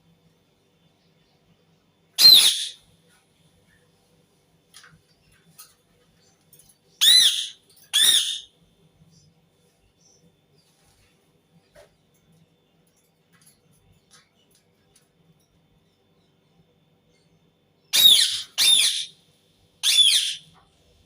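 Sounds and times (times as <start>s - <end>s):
parakeet screeching calls: 2.2s - 2.8s, 7.0s - 8.5s, 17.9s - 19.1s, 19.8s - 20.5s.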